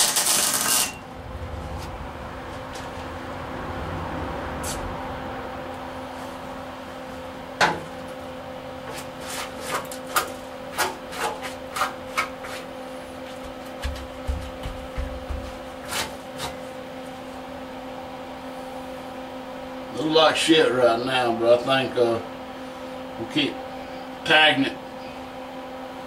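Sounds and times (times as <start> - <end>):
welder arc bursts: 0.0 - 1.0
steady hum: 0.0 - 26.0.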